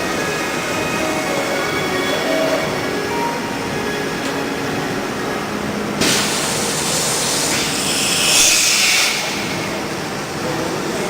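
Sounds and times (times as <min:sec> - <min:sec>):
loud hiss: 0:06.0 - 0:11.0
drilling machine running: 0:06.2 - 0:10.6.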